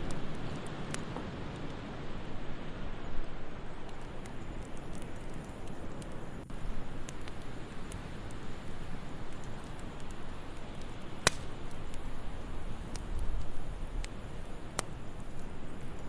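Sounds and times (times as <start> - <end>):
wood fire crackling: 0.0 - 16.0
sharp fire pop: 11.2 - 11.5.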